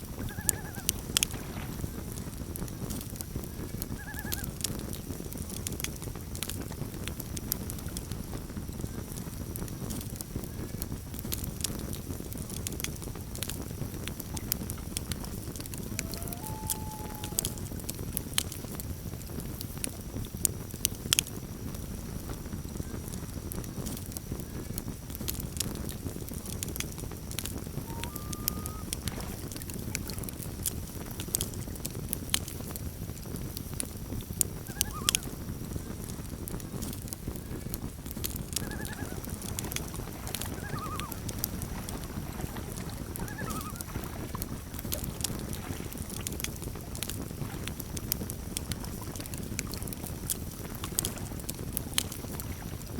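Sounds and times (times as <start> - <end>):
campfire crackling and popping: 0.0 - 52.9
faint bird calls: 0.2 - 1.2, 3.9 - 4.5, 15.8 - 17.8, 27.8 - 29.2, 34.6 - 35.4, 38.5 - 41.8, 42.5 - 44.1.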